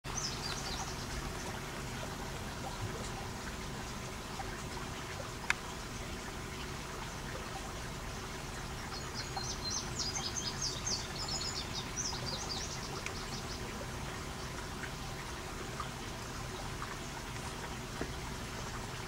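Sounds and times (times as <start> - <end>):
bird twittering: 8.9 - 13.7.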